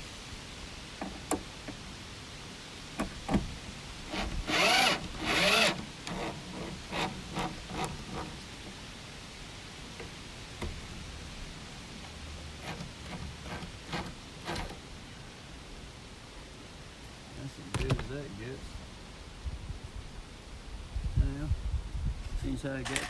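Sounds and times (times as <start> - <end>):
power drill on wood: 4.1 - 8.7, 12.6 - 14.8.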